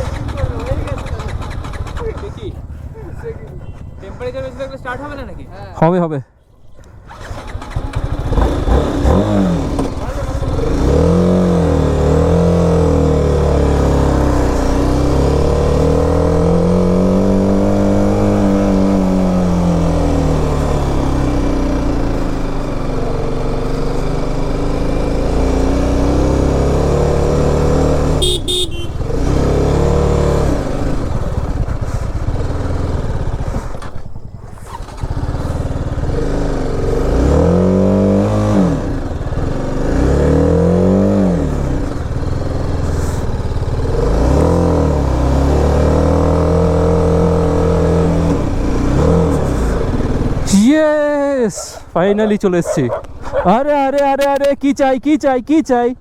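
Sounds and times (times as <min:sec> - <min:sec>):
motorcycle engine under load: 0:00.0 - 0:05.5, 0:06.8 - 0:56.0
short horn beep: 0:28.2 - 0:29.0.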